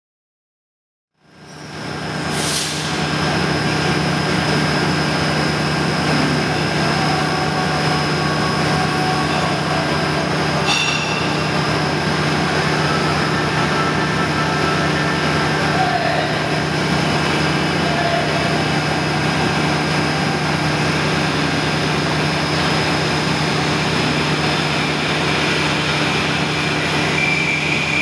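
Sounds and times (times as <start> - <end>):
conveyor humming and whirring: 1.2 - 28.0
brief hiss: 2.3 - 3.0.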